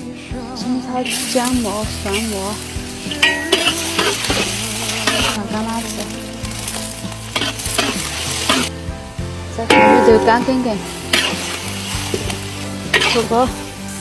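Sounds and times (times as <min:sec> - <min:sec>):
ginger sizzling in hot oil: 0:01.0 - 0:14.0
metal spatula scraping wok: 0:03.1 - 0:05.4, 0:07.3 - 0:08.7, 0:09.7 - 0:13.5.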